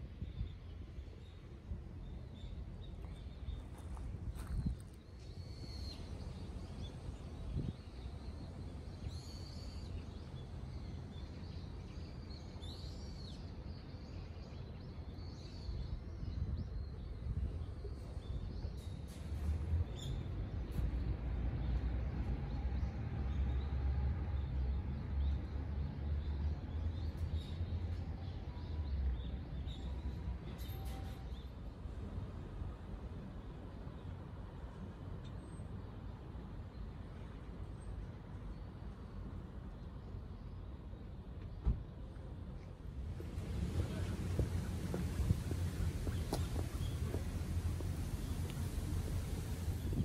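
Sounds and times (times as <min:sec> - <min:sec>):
small birds chirping: 0:43.4 - 0:50.0.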